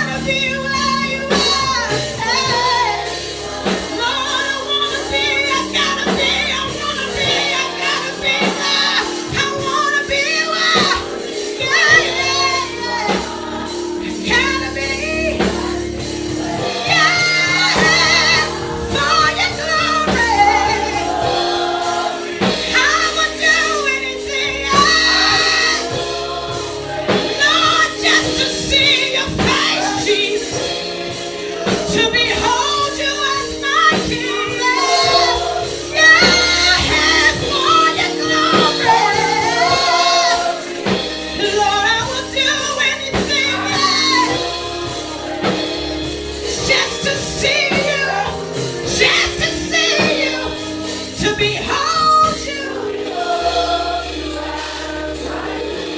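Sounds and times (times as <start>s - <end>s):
gospel singing with accompaniment: 0.0s - 55.9s.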